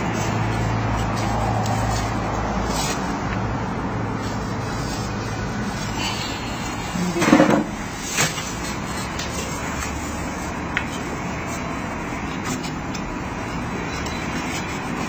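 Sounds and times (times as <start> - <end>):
knock: 7.2 - 7.8.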